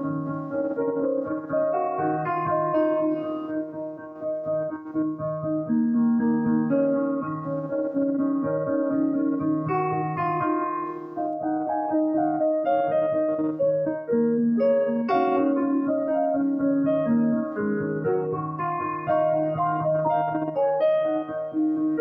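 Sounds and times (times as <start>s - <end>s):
piano keyboard music: 0.0s - 22.0s.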